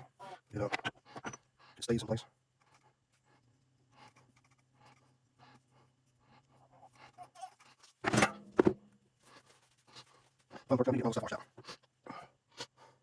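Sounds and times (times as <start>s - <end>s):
parts scraping and ticking: 0.5s - 1.4s.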